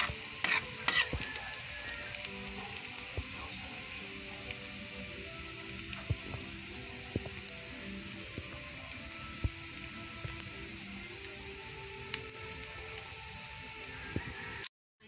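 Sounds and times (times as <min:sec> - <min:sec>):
scraping in a pan: 0:00.0 - 0:01.8
garlic and onion sizzling: 0:00.0 - 0:14.7.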